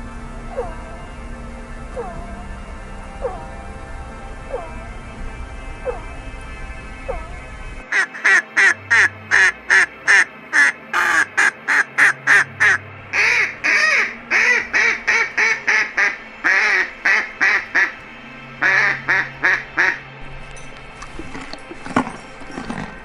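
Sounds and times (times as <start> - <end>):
animal calling: 7.1 - 18.0.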